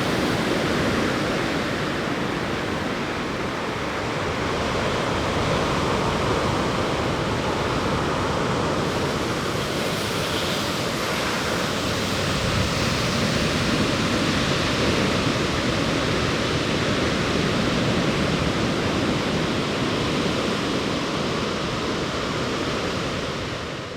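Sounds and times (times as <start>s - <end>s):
ocean surf breaking: 0.0s - 5.2s, 8.4s - 22.4s.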